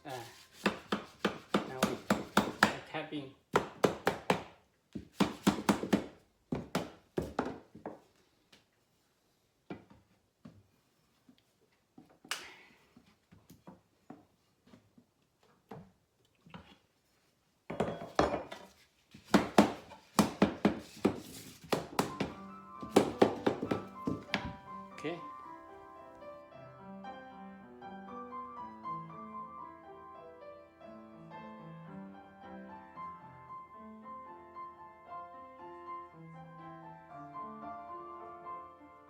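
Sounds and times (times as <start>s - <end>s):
wood knocking on wood: 19.3s - 24.6s.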